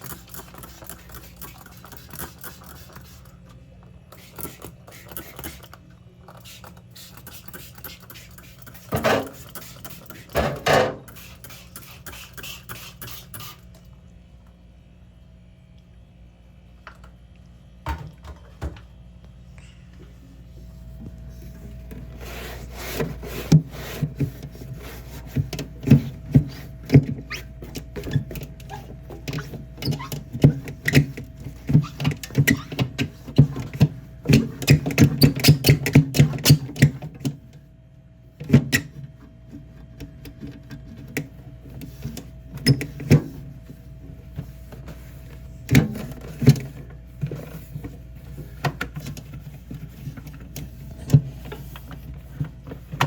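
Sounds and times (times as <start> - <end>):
cloth scrubbing inside fridge: 20.4 - 53.0.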